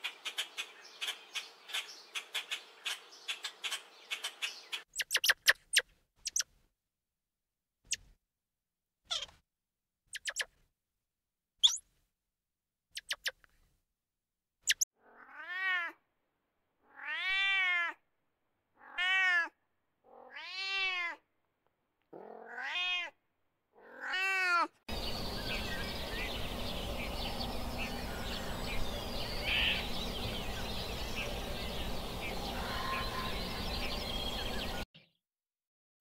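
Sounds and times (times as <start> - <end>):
monkey high squeaks: 4.9 - 6.5, 9.1 - 9.4, 10.1 - 10.5, 11.6 - 11.8, 13.0 - 13.4, 14.6 - 14.8
wild cat meowing: 15.0 - 16.0, 16.8 - 18.0, 18.8 - 21.2, 22.1 - 24.8, 29.4 - 29.9, 32.5 - 33.7
faint bird calls: 24.9 - 34.8.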